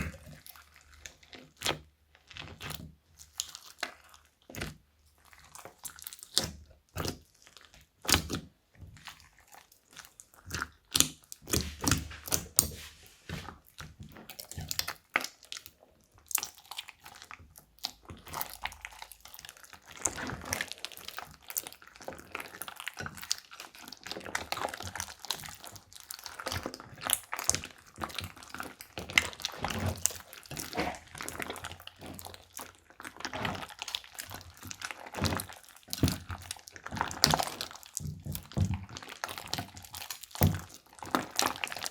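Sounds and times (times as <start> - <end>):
slime squished by hand: 0.0 - 41.9.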